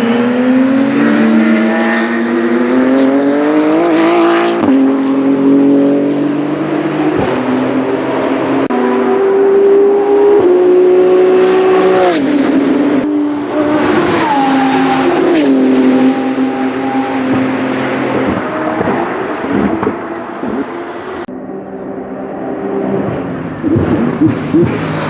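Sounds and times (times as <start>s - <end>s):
race car engine downshifting: 0.0s - 25.0s
exhaust crackle: 22.6s - 25.0s.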